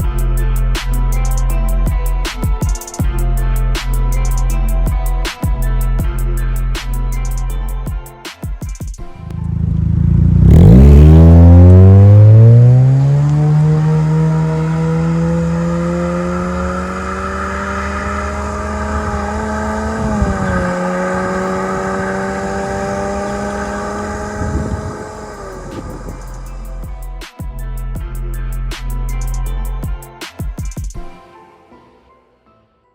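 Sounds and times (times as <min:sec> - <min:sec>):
car engine accelerating hard: 0:09.2 - 0:26.8.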